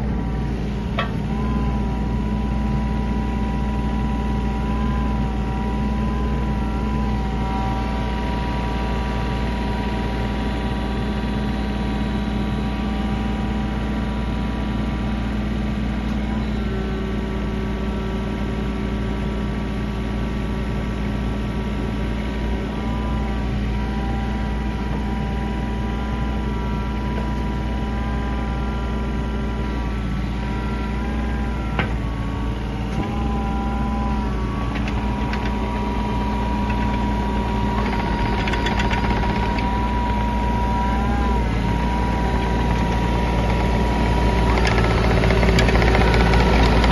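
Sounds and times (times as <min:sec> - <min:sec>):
excavator diesel engine running: 0:00.0 - 0:46.9
hydraulic whining tones: 0:22.3 - 0:46.9.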